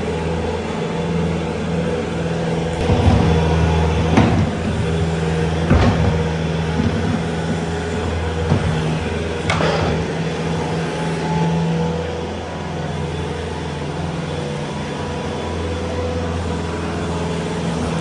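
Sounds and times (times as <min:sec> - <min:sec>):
vehicle engine running: 0:00.0 - 0:18.0
short knocks: 0:02.8 - 0:11.1.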